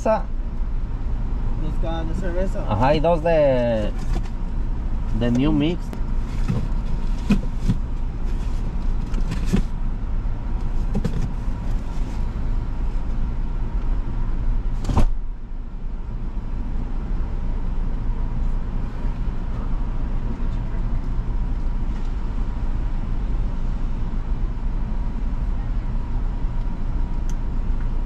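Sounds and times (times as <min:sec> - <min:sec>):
car engine idling: 0:00.0 - 0:28.0
sharp thump: 0:14.8 - 0:15.2.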